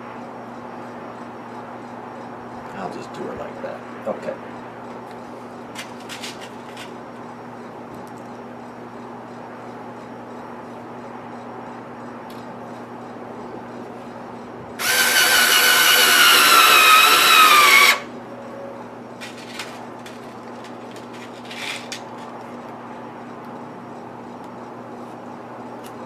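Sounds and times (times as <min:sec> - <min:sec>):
power drill drilling into wood: 0:14.8 - 0:18.1.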